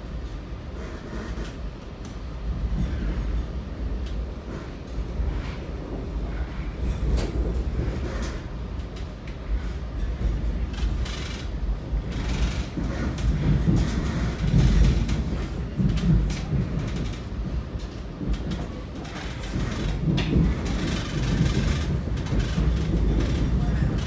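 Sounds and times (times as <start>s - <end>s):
train rumbling on track: 0.0s - 24.0s
clanks and rattles: 6.8s - 24.0s.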